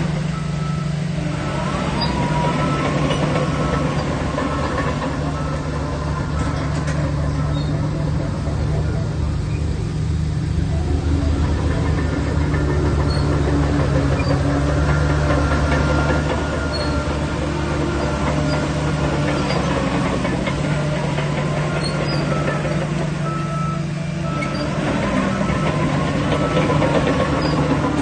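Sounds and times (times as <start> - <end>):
bulldozer diesel engine running: 0.0 - 28.0
thin squeals: 10.5 - 19.8.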